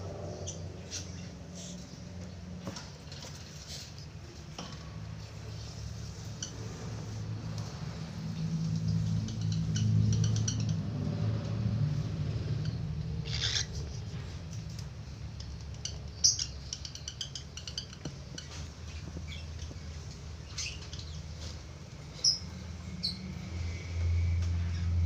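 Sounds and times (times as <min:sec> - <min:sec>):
budgerigar chirping: 0:13.2 - 0:13.8.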